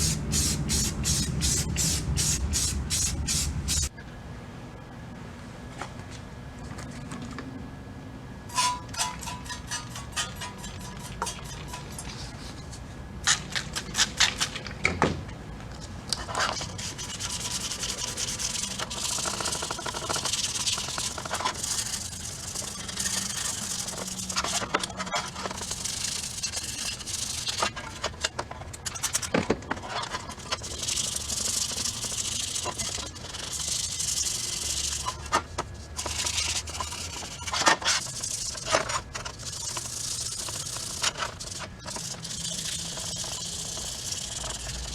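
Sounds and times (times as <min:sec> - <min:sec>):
sandpaper rubbing by hand: 0:00.0 - 0:03.9, 0:16.6 - 0:24.6.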